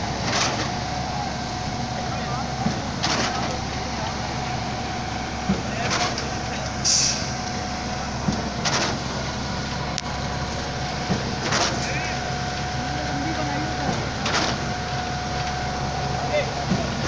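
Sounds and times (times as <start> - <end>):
concrete pump running: 0.0 - 17.0
hiss of released air: 6.8 - 7.4.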